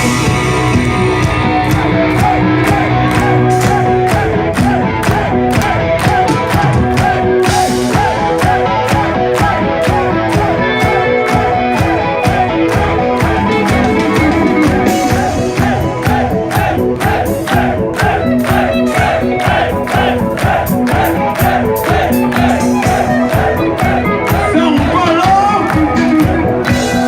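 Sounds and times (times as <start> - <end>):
drums and cymbals hitting: 0.0 - 27.0
rock band playing live: 0.0 - 27.0.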